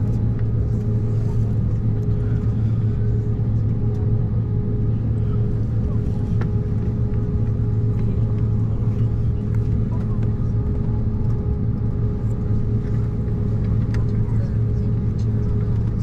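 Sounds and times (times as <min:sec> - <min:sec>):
airliner cabin engine drone: 0:00.0 - 0:16.0.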